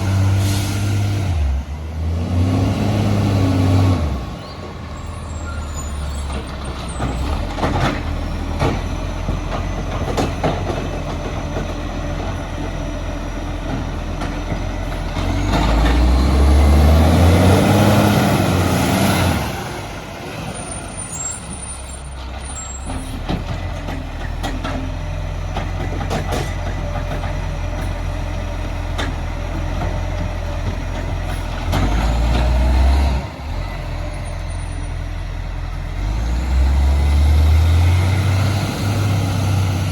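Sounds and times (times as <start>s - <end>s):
garbage truck diesel engine: 0.0s - 39.9s
knocks and clatter: 6.3s - 12.8s, 22.2s - 32.6s.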